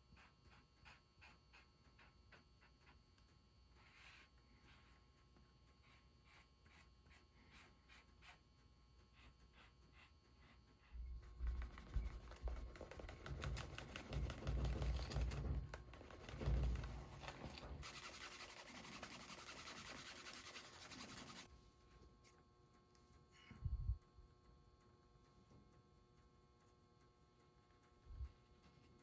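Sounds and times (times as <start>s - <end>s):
scratchy rubbing on leather: 11.2s - 21.5s.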